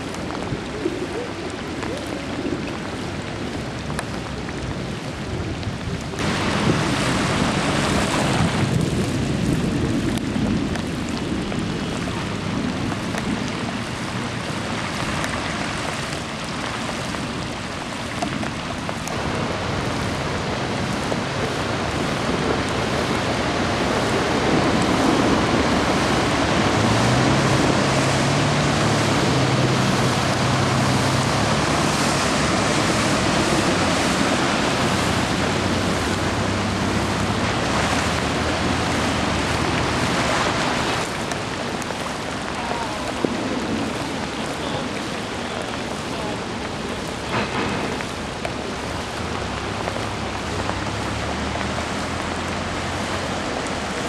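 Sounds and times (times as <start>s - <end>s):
heavy rain: 0.0s - 54.0s
rushing floodwater: 0.0s - 54.0s.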